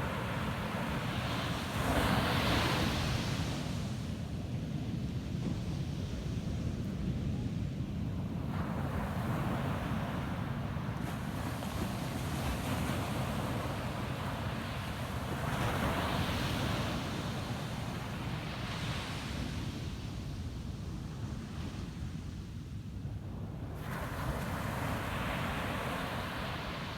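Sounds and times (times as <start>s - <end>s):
ocean waves washing onto beach: 0.0s - 4.4s, 23.6s - 26.9s.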